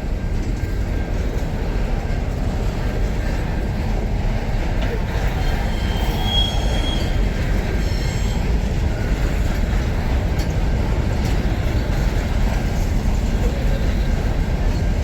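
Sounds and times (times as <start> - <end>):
train wheels rumbling on rail: 0.0 - 15.0
high wheel squeal: 5.2 - 8.5.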